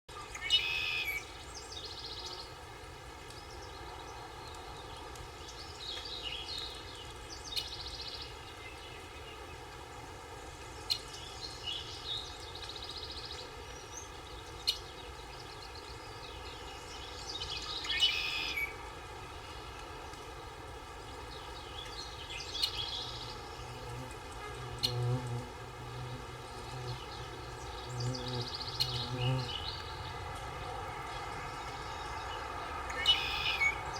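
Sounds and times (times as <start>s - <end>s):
songbird singing: 0.1s - 33.9s
insect buzz: 22.5s - 30.2s.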